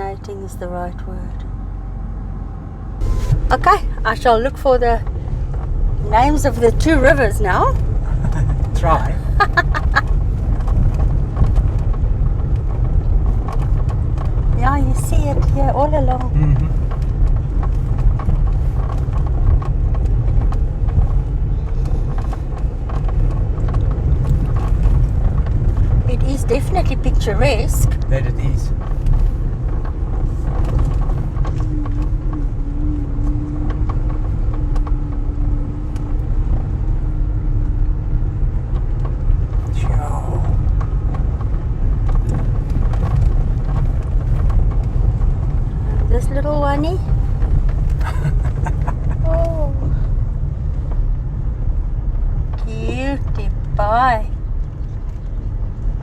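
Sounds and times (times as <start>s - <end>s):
vehicle rumble from inside: 0.0s - 56.0s.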